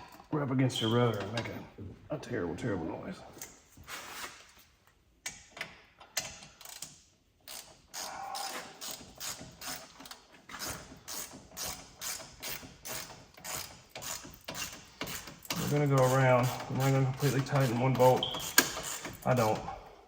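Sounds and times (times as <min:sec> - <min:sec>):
ratchet clicking: 0:06.2 - 0:19.2.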